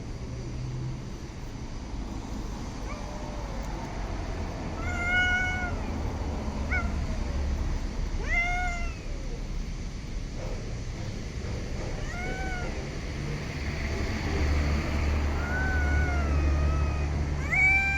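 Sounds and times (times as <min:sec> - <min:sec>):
cat meowing: 0:02.8 - 0:07.4, 0:08.1 - 0:09.4, 0:12.0 - 0:13.0, 0:15.0 - 0:17.9
cat chirp: 0:04.7 - 0:06.0, 0:06.6 - 0:07.2, 0:08.2 - 0:09.4, 0:12.0 - 0:12.8, 0:15.3 - 0:17.9.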